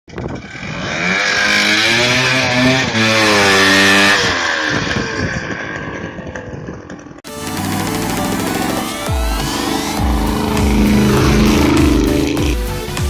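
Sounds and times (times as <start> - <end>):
snowmobile engine revving: 0.5 - 5.5, 7.4 - 13.0.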